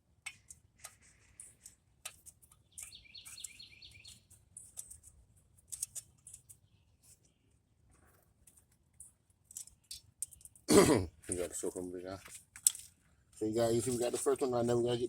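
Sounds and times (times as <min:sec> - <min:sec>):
bird chirping: 0:02.4 - 0:05.0, 0:06.2 - 0:07.6.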